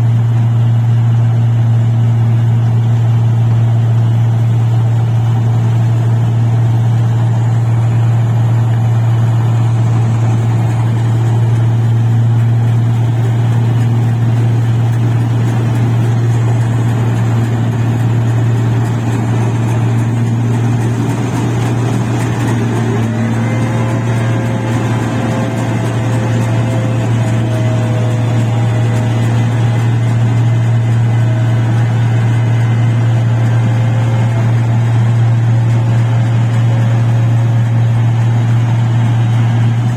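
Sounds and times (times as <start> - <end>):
machine engine humming: 0.0 - 39.9.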